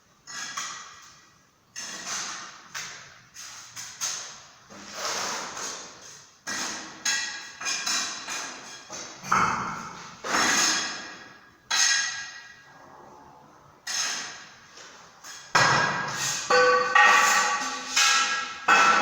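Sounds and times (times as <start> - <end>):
sharp knocks and clinks: 15.5 - 19.0.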